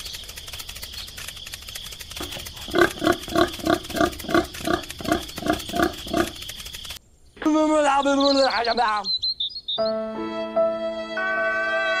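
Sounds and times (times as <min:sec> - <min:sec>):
scratchy hiss: 0:00.0 - 0:07.0.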